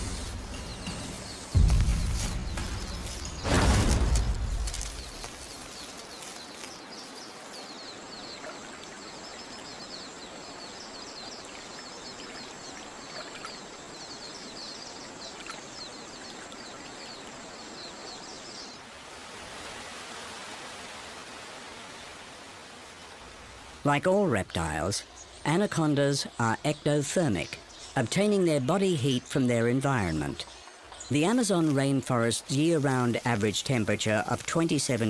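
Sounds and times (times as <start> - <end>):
rapid bird chirps: 0.0 - 8.6.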